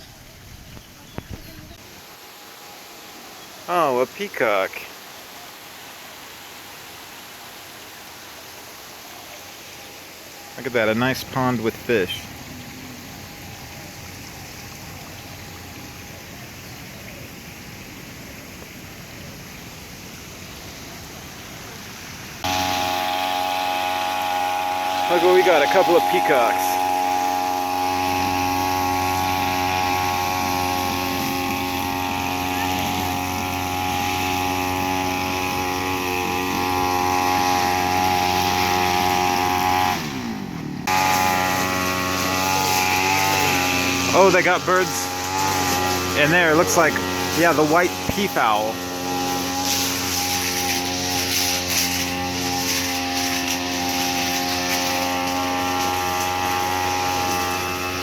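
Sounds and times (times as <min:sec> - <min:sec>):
running water: 0:00.0 - 0:58.0
loud steady hum: 0:22.4 - 0:58.0.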